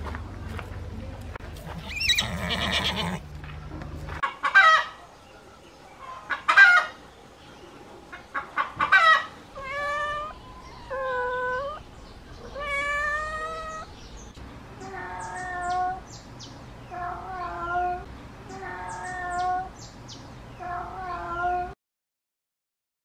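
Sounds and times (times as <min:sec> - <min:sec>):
chickens clucking: 0:03.8 - 0:05.2, 0:06.0 - 0:07.1, 0:07.8 - 0:09.6
cat meowing: 0:09.6 - 0:11.8, 0:12.5 - 0:13.9, 0:16.9 - 0:19.7, 0:20.6 - 0:21.8.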